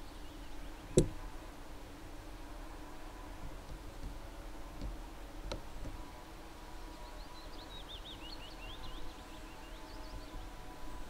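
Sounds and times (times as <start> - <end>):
faint steady hum: 0.0 - 11.0
songbird twittering: 6.9 - 10.5.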